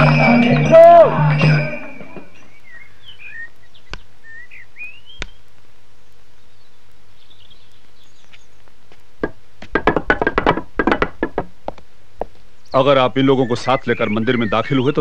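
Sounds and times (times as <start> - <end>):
birds chirping: 0.0 - 9.2, 12.2 - 15.0
background hiss: 0.0 - 15.0.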